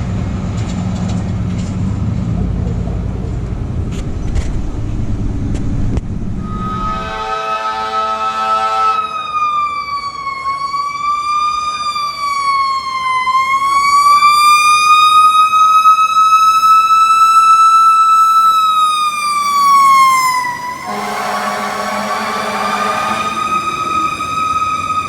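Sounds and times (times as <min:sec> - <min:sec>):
horn blast: 0:06.4 - 0:09.4, 0:20.7 - 0:25.0
fire truck siren wailing: 0:06.4 - 0:25.0.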